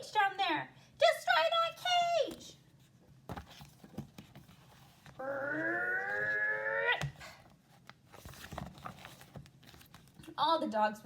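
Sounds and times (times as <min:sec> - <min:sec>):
person making animal-like vocal sound: 0:05.2 - 0:07.2.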